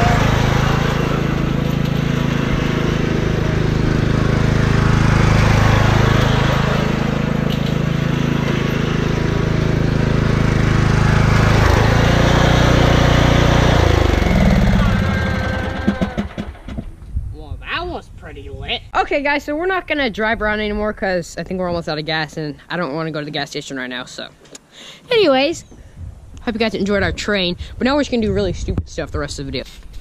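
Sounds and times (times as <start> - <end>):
riding lawn mower engine: 0.0 - 17.0.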